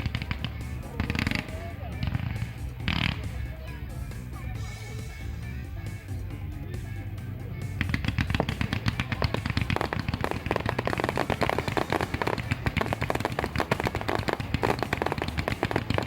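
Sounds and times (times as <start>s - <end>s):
deep fireworks booms: 0.0s - 3.4s, 7.8s - 16.0s
fireworks crackling: 0.0s - 3.8s, 7.7s - 16.0s.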